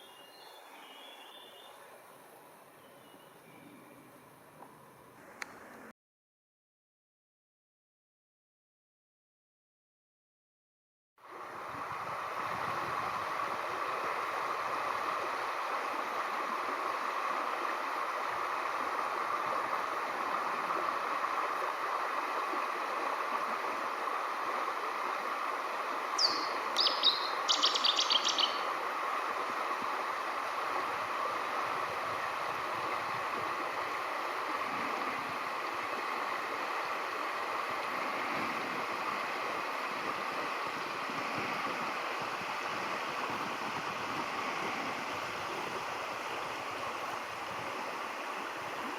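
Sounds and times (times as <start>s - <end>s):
river cascade rushing: 11.3s - 48.9s
bird calling: 26.2s - 28.7s.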